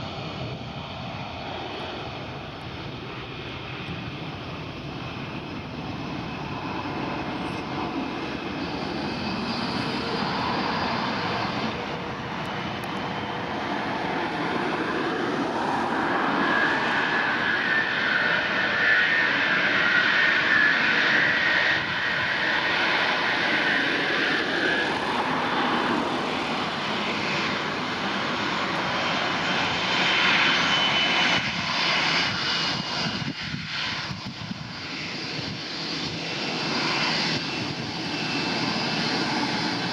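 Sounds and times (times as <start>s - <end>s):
jet engines running: 0.0s - 39.9s
high engine whine: 1.7s - 39.9s.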